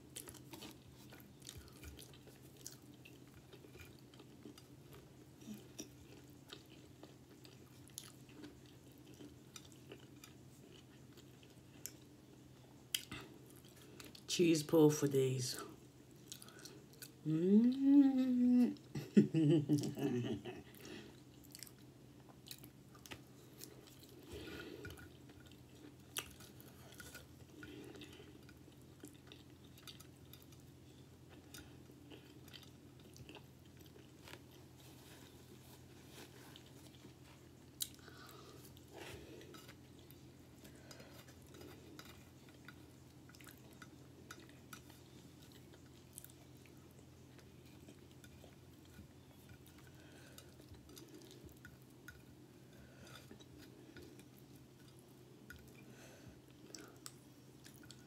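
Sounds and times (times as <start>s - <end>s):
chewing and wet mouth sounds: 0.0s - 14.3s, 15.8s - 17.9s, 19.7s - 58.0s
person humming mmm: 17.2s - 20.6s.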